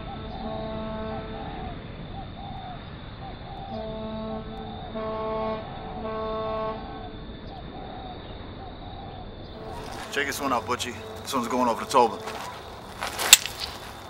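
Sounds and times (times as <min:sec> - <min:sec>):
horn-like alarm beeps: 0:03.7 - 0:07.1, 0:09.5 - 0:12.8
warbling alarm chirps: 0:06.7 - 0:12.9.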